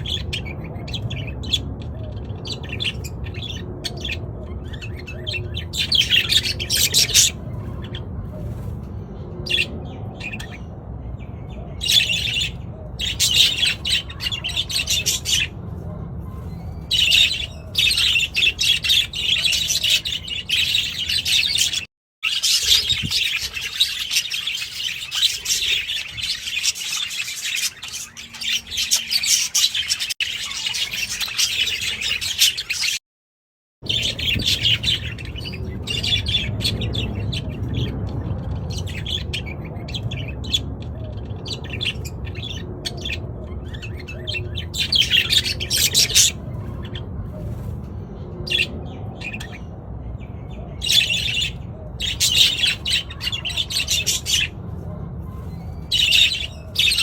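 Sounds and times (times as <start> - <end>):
budgerigars chirping: 2.5 - 8.0, 11.8 - 15.6, 16.3 - 33.0, 33.9 - 37.9, 41.4 - 47.6, 50.8 - 54.6, 55.4 - 57.0.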